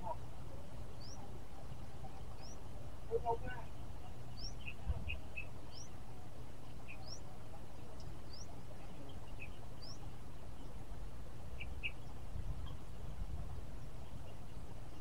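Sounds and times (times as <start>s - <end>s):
bird chirping: 0.9s - 1.3s, 2.0s - 6.0s, 6.8s - 7.3s, 8.2s - 10.8s, 11.6s - 12.9s.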